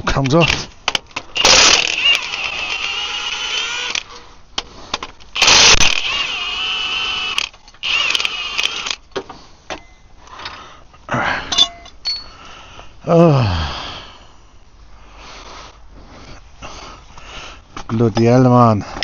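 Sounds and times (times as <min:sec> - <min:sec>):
cordless power tool whining: 0:01.4 - 0:04.1, 0:05.4 - 0:09.0.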